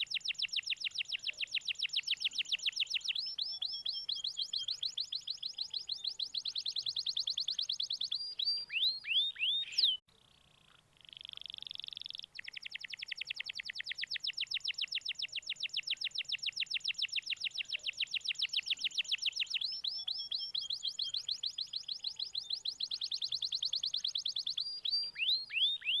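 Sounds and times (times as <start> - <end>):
canary trilling song: 0.0 - 26.0.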